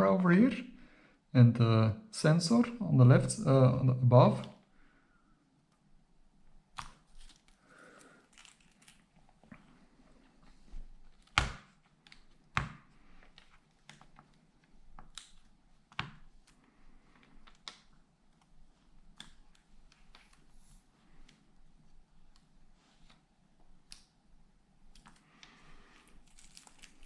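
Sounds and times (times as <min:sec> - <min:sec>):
faint crinkling: 0:06.9 - 0:15.6, 0:24.9 - 0:27.0.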